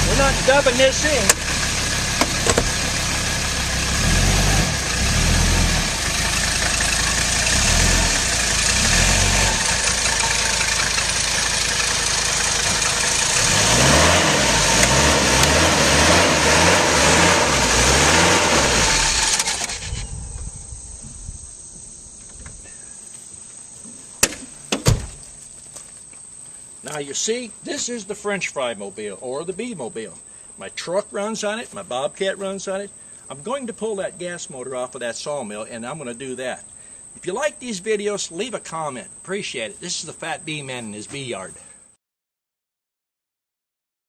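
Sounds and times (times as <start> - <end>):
diesel engine running: 0.0 - 22.1.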